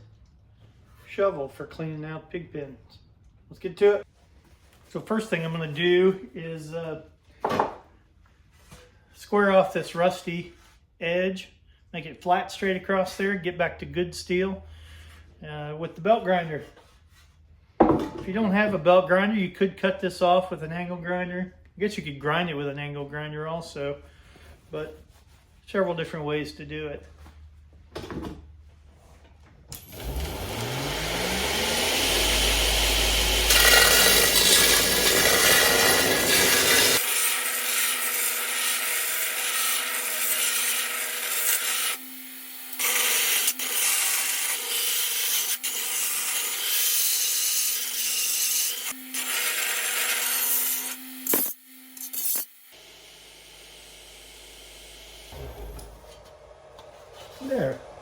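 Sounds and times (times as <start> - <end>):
belt grinding steel: 29.8 - 37.1
belt grinder motor starting: 29.8 - 38.5, 48.8 - 58.0.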